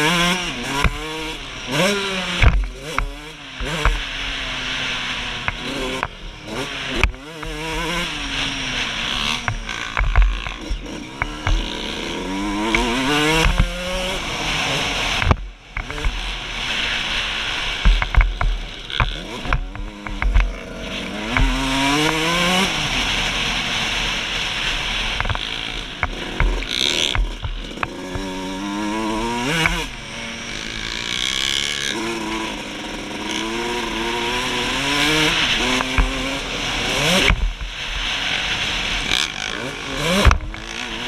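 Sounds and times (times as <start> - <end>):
motorcycle engine revving: 0.0 - 41.0
sharp thumps from landings: 40.0 - 41.0.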